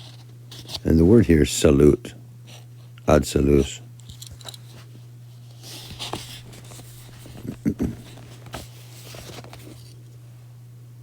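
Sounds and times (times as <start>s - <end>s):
steady low hum: 0.0s - 11.0s
low murmurs: 7.3s - 8.2s.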